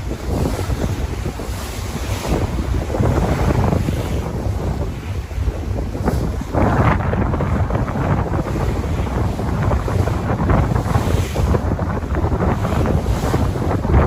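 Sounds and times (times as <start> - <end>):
ocean waves rushing: 0.0 - 14.0
wind buffeting microphone: 0.0 - 14.0.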